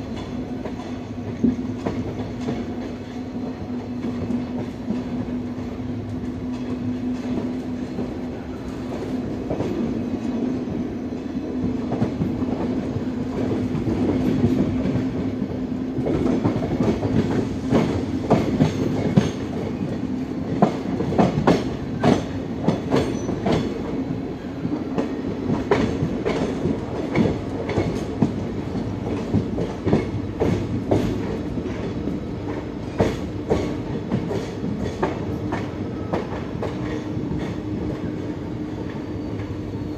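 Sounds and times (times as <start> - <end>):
train rumble and hum: 0.0 - 39.9
train wheels clacking: 11.6 - 39.6.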